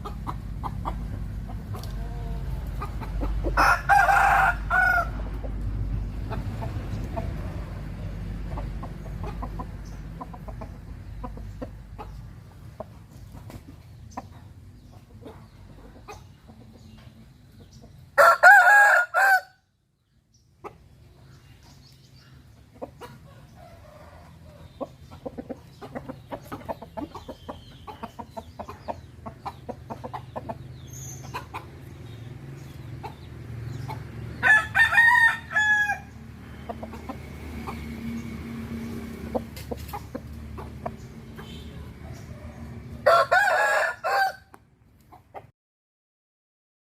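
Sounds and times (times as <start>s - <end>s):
chicken clucking: 0.0s - 19.0s, 20.3s - 45.5s
rooster crowing: 3.6s - 5.3s, 18.2s - 19.6s, 34.4s - 36.1s, 42.3s - 44.5s.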